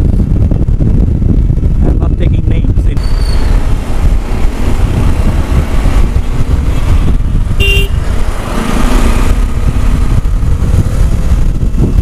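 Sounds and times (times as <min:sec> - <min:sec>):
road and vehicle noise: 0:00.0 - 0:12.0
wind buffeting microphone: 0:00.0 - 0:12.0
vehicle horn toot: 0:07.6 - 0:08.0.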